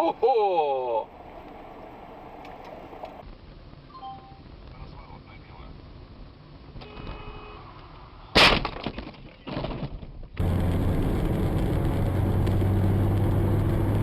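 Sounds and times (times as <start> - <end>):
low vehicle engine drone: 10.4 - 14.0.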